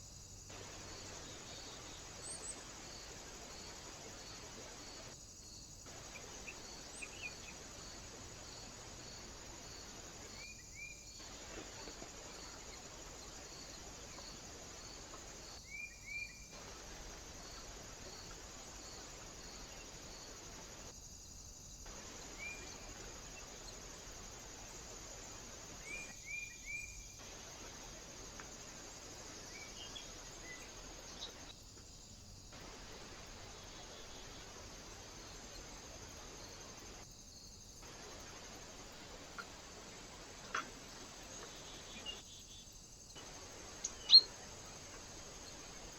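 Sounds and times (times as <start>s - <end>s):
constant hiss: 0.0s - 45.9s
insect chirring: 0.0s - 45.9s
short bird chirps: 43.8s - 44.4s.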